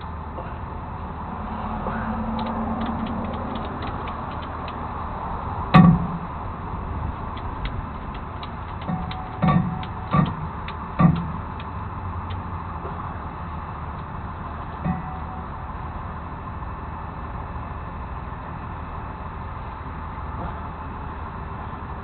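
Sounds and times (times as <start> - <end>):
steady low rumble: 0.0 - 22.0
light ticking: 2.2 - 5.0, 7.1 - 12.5
loud metallic clunk: 5.7 - 6.4, 8.8 - 11.5, 14.8 - 15.7.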